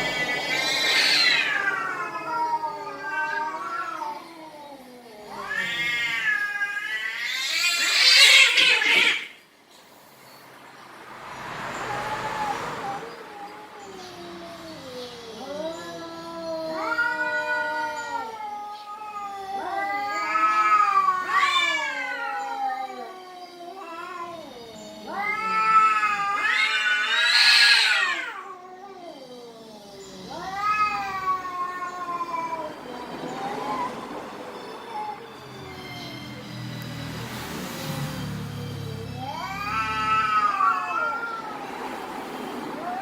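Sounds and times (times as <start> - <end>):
cats yowling: 0.0 - 9.4, 11.7 - 43.0.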